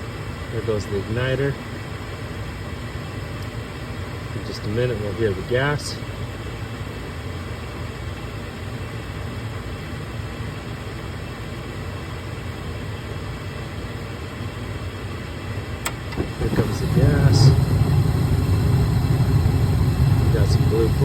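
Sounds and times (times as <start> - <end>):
furnace inducer motor humming: 14.2 - 21.0.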